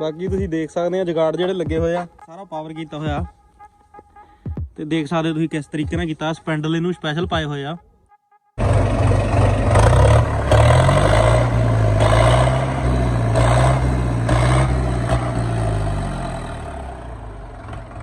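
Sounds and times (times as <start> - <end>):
tractor diesel engine running: 8.6 - 18.0.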